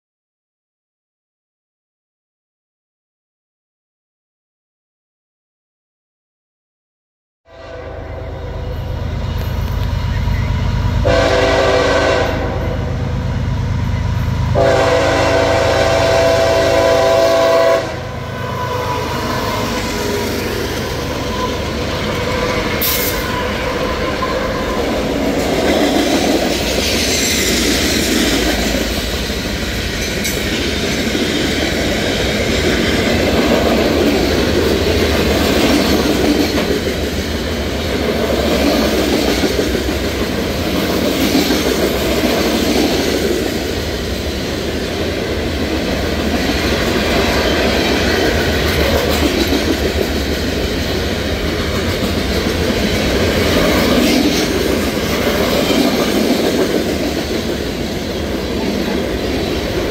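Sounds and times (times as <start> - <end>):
train air horn blasts: 7.5 - 8.9, 11.0 - 13.1, 14.5 - 19.7
diesel locomotive engine rumble: 7.6 - 59.9
train wheels clattering on rails: 19.1 - 59.9.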